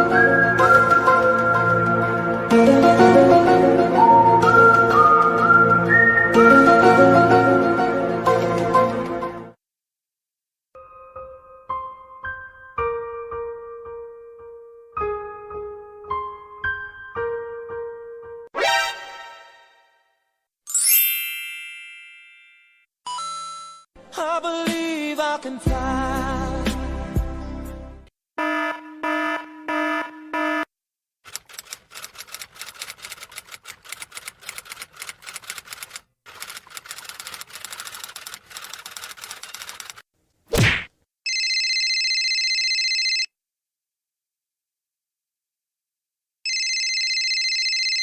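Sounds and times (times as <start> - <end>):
typing keystrokes: 31.3 - 40.0.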